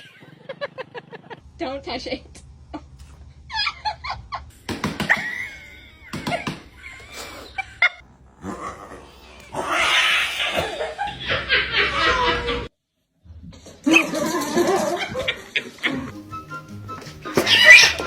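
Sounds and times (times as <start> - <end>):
cat meowing: 17.4 - 18.0.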